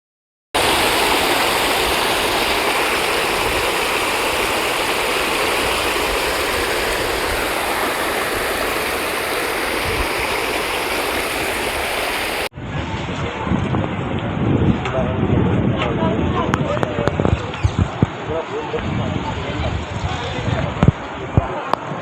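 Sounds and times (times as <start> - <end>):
water roaring from spillway: 0.6 - 12.5.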